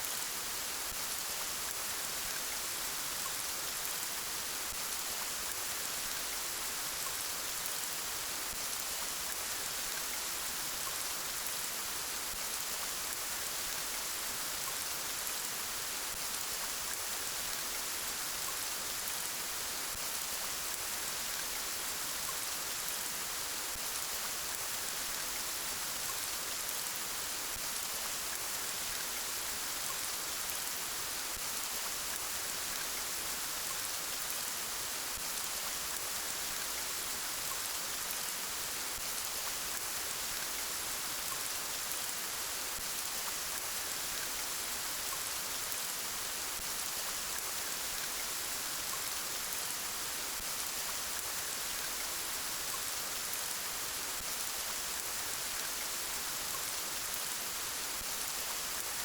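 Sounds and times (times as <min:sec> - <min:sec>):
soft rain falling: 0:00.0 - 0:59.0.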